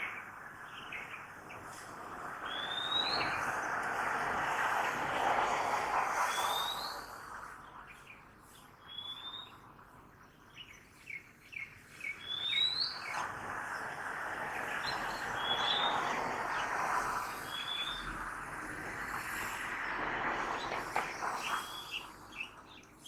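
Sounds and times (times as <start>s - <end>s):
birds singing: 7.9s - 13.2s, 14.7s - 18.2s, 20.6s - 23.0s
city traffic hum: 13.0s - 23.0s.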